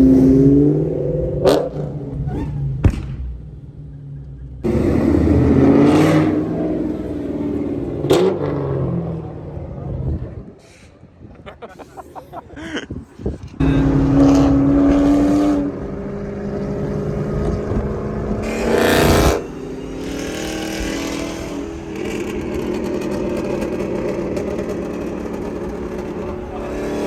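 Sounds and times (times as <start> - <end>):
car engine running hard: 4.2 - 10.4, 13.6 - 27.0.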